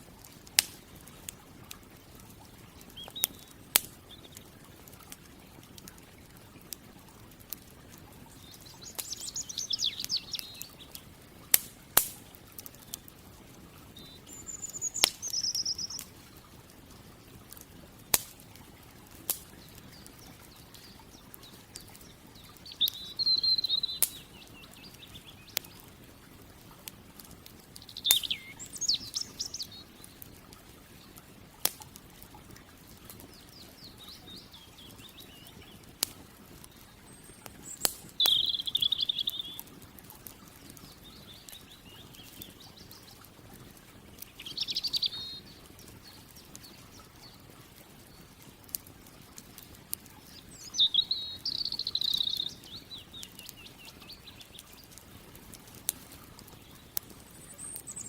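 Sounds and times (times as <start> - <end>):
campfire crackling: 0.0 - 58.0
songbird warbling: 2.9 - 4.4, 8.3 - 11.0, 13.9 - 16.2, 19.5 - 26.0, 27.7 - 30.3, 33.3 - 35.9, 36.6 - 39.7, 40.8 - 43.2, 44.1 - 47.4, 50.2 - 55.0, 56.5 - 58.0.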